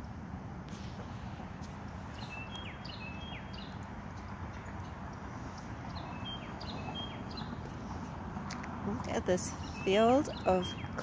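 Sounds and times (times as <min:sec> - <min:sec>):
steady low background noise: 0:00.0 - 0:11.0
songbird singing whistled notes: 0:02.1 - 0:08.2, 0:09.4 - 0:11.0.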